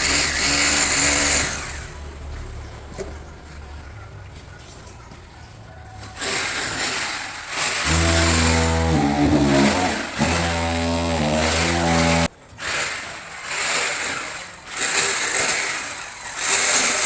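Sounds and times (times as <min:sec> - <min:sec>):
power tool humming: 0:07.8 - 0:12.3.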